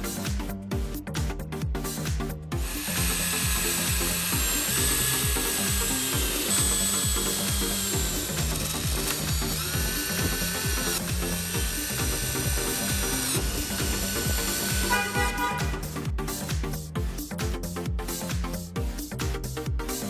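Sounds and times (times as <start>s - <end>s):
dance music with kick beat: 0.0s - 20.0s
power tool whining: 2.6s - 16.0s.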